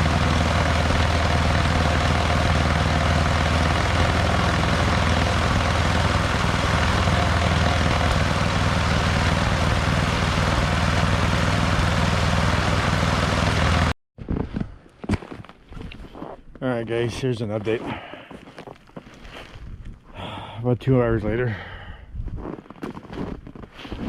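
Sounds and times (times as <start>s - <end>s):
snowblower engine running: 0.0s - 14.0s.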